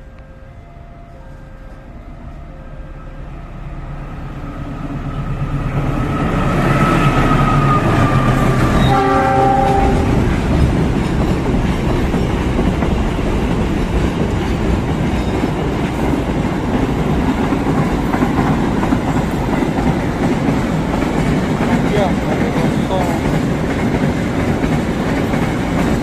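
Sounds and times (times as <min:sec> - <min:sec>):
freight train rumbling past: 0:00.0 - 0:26.0
train horn blast: 0:05.1 - 0:10.2.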